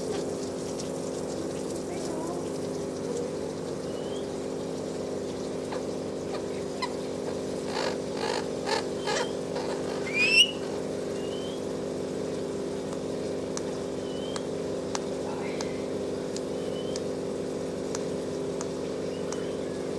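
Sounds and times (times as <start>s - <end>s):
steady low hum: 0.0s - 19.9s
faint chirps: 2.4s - 4.3s, 16.5s - 17.0s, 19.0s - 19.9s
parakeet calling: 2.5s - 4.3s, 5.7s - 11.6s, 14.0s - 14.4s, 16.5s - 17.0s.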